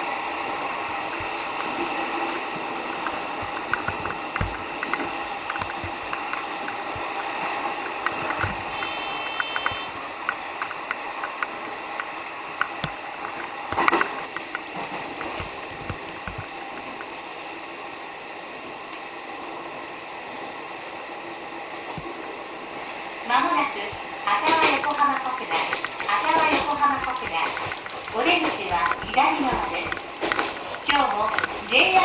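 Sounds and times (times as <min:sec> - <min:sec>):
train wheels rumbling on rail: 0:00.0 - 0:32.0
clicks and knocks: 0:00.3 - 0:17.2, 0:24.3 - 0:32.0
brief high tone: 0:08.8 - 0:10.0
loud rattle: 0:24.0 - 0:32.0.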